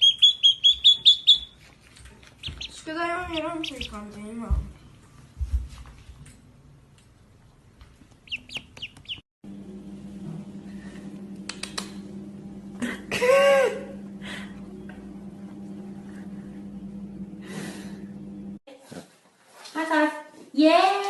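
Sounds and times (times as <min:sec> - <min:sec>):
steady hum: 0:09.4 - 0:18.6.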